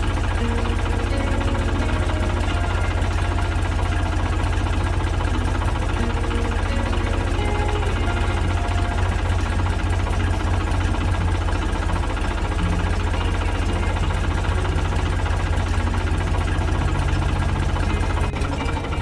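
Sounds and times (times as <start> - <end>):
small engine idling: 0.0 - 19.0.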